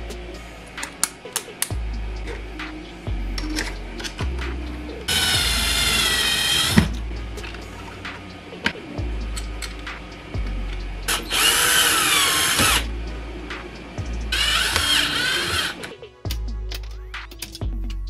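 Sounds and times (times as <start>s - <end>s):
cordless drill motor whine: 5.1s - 6.9s, 11.1s - 12.8s, 14.3s - 15.8s.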